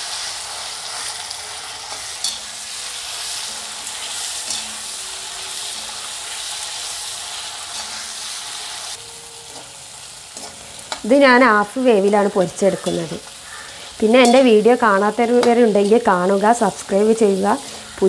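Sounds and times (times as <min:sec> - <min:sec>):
prawns sizzling in hot oil: 0:00.0 - 0:18.0
spatula scraping and clinking pan: 0:01.6 - 0:08.6, 0:10.3 - 0:11.0, 0:12.4 - 0:14.6.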